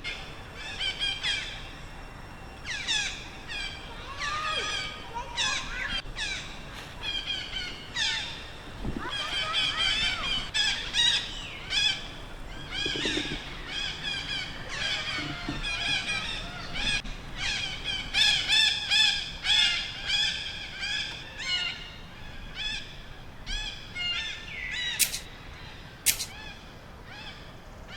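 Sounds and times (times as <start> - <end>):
sharp clicks: 25.0 - 25.3, 26.1 - 26.3.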